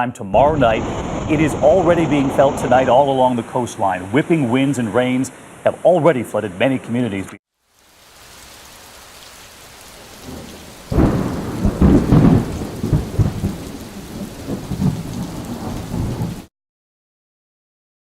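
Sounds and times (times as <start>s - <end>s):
rolling thunder: 0.4s - 3.6s, 10.1s - 16.5s
steady rain: 0.4s - 16.5s.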